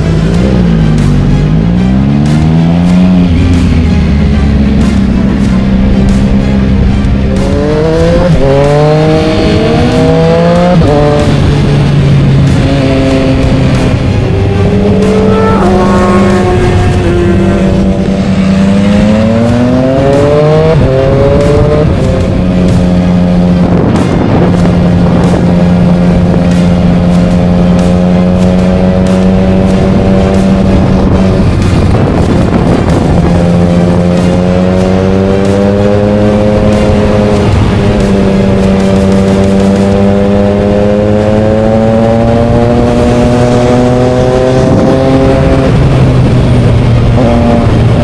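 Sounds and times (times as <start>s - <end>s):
motorcycle engine accelerating: 0.0s - 48.0s
wind rushing: 6.6s - 27.8s, 28.8s - 39.4s.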